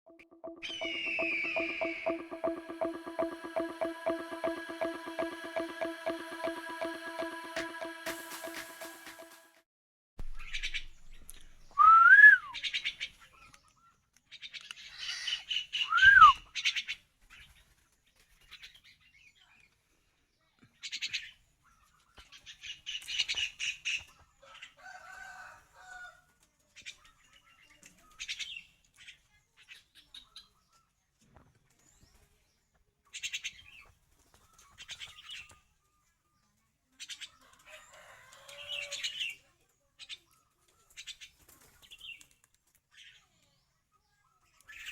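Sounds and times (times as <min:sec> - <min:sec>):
rising and falling whistles: 0:11.8 - 0:12.5, 0:15.9 - 0:16.3.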